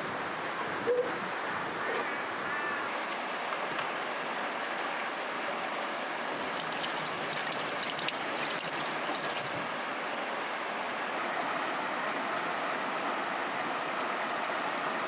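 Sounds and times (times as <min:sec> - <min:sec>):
river water flowing: 0:06.4 - 0:10.1.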